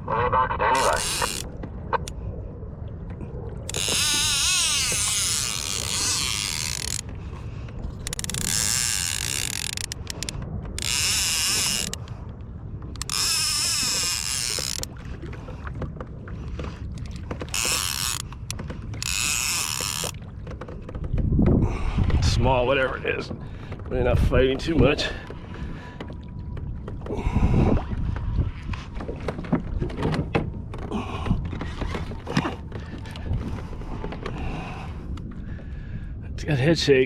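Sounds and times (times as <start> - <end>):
low rumble of wind and water: 0.0 - 37.0
fishing reel gears whirring: 0.8 - 1.5, 3.7 - 7.1, 8.0 - 12.1, 13.0 - 14.9, 17.0 - 20.2.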